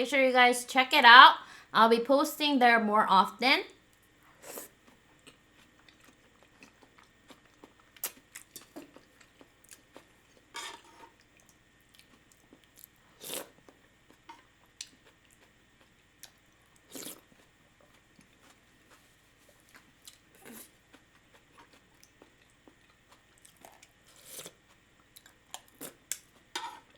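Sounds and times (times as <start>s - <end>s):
chewing with wet mouth clicks: 4.8s - 10.2s, 11.2s - 19.0s, 19.7s - 26.5s.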